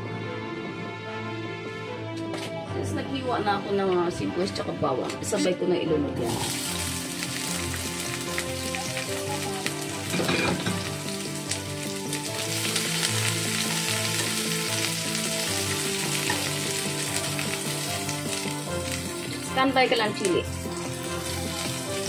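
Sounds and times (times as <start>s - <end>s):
onion sizzling in hot oil: 6.2s - 22.0s.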